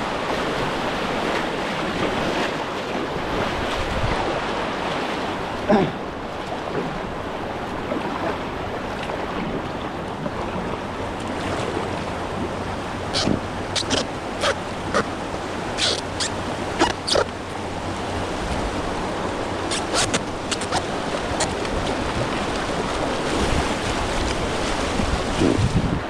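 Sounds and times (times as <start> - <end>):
water splashes: 7.8 - 25.6
river water rushing: 10.8 - 25.2.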